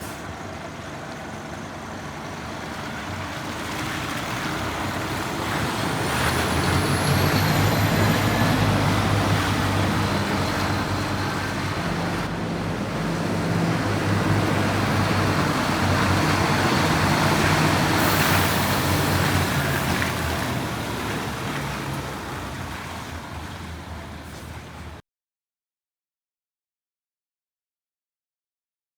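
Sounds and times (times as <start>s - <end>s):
truck diesel engine running: 0.0s - 25.0s
hiss: 18.0s - 19.2s.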